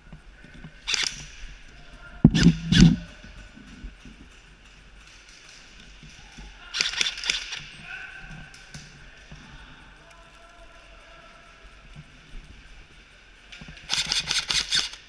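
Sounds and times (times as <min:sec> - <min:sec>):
airsoft gun shots: 0:02.3 - 0:03.1
faint distant shouting: 0:07.7 - 0:11.7.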